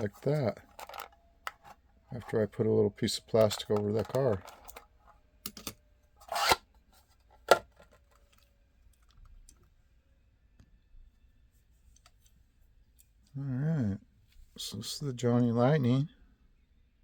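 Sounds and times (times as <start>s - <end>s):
small handling noises: 0.0s - 9.8s, 11.4s - 13.4s.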